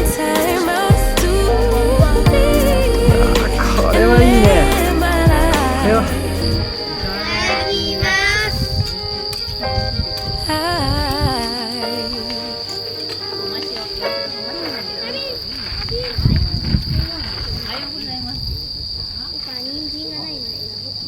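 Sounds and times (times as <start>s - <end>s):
sung pop song: 0.0s - 8.5s, 10.4s - 13.3s
insects trilling: 0.0s - 21.0s.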